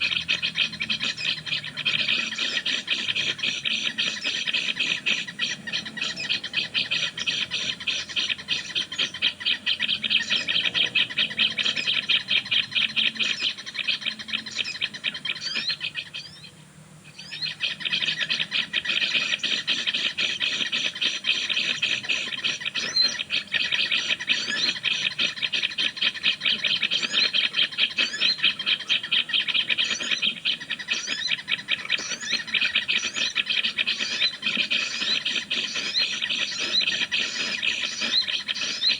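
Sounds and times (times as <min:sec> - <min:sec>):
rapid ticking bird trill: 0:00.0 - 0:16.5, 0:17.2 - 0:38.9.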